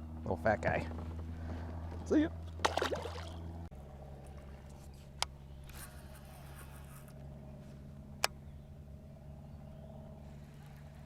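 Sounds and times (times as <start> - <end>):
light scraping: 4.6 - 7.8.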